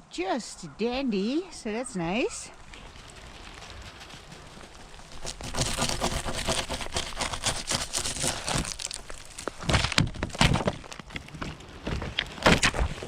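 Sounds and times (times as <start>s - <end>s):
ice crunching and cracking: 2.6s - 13.0s.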